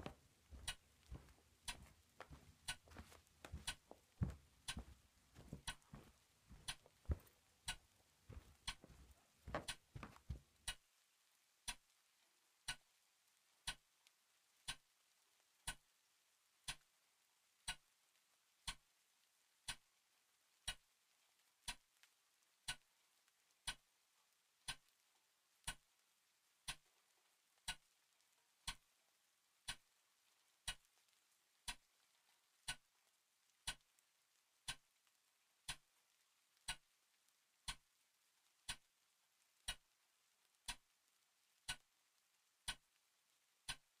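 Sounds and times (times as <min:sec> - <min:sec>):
clock ticking: 0:00.0 - 0:10.9, 0:11.7 - 0:11.9, 0:14.7 - 0:14.9, 0:33.7 - 0:33.9, 0:34.7 - 0:34.9, 0:36.7 - 0:36.9, 0:38.7 - 0:38.9, 0:39.6 - 0:39.9, 0:40.7 - 0:40.9, 0:41.6 - 0:41.9, 0:42.7 - 0:42.9, 0:43.7 - 0:44.0.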